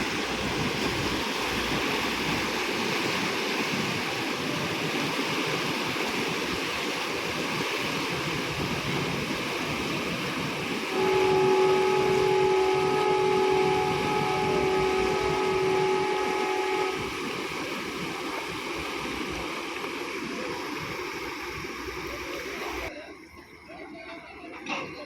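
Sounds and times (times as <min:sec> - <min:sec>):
water noise: 0:00.0 - 0:25.0
wind: 0:00.0 - 0:25.0
ship's horn blast: 0:10.8 - 0:19.4.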